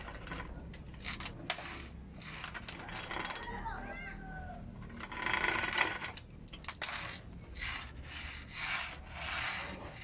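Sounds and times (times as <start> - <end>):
loud scrape: 6.8 - 10.0
rasping rubbing strokes: 6.9 - 10.0.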